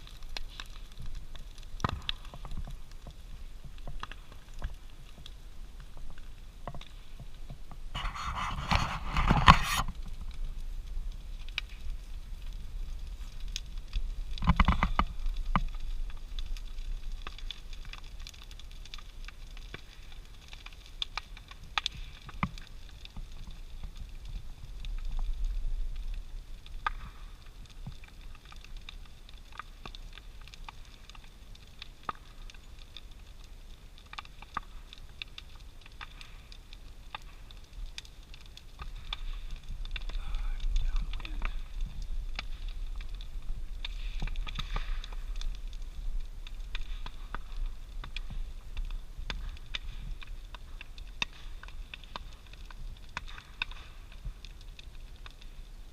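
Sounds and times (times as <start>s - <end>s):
bonfire crackling and popping: 0.0s - 55.9s.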